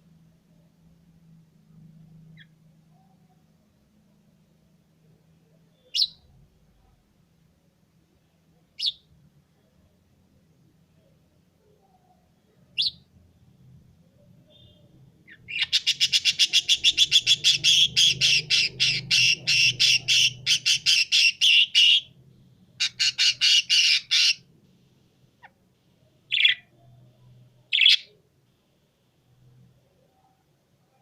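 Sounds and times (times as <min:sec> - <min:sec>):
pet bird calling: 0:14.5 - 0:22.1, 0:22.8 - 0:24.4, 0:26.3 - 0:26.7, 0:27.7 - 0:28.1.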